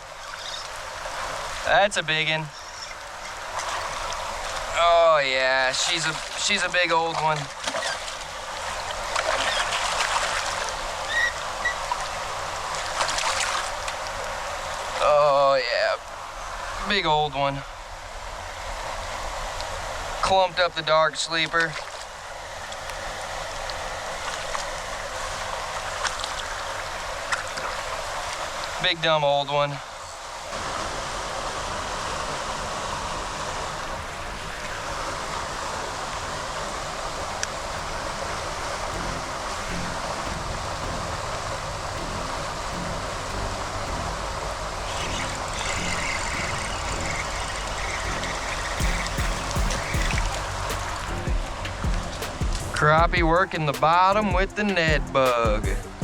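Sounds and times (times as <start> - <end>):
floodwater rushing through drain: 0.0 - 56.0
short high chirps: 39.0 - 52.8.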